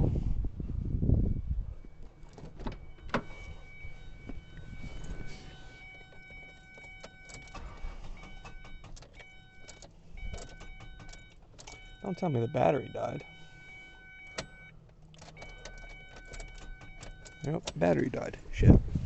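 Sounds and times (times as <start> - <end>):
ignition clicks: 1.8 - 12.1, 14.1 - 18.2
electronic warning chime: 2.8 - 18.0.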